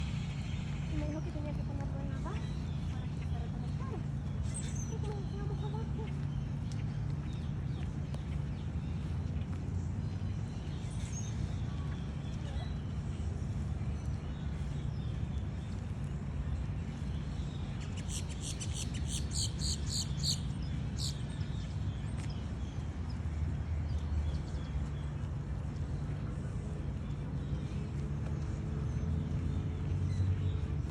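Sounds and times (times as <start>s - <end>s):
steady low rumble: 0.0s - 30.9s
bird chirping: 17.8s - 21.2s.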